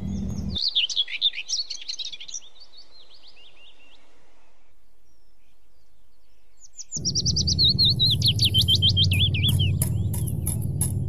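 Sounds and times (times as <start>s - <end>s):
low rumble: 0.0s - 0.6s, 7.0s - 11.0s
birds chirping: 0.0s - 11.0s.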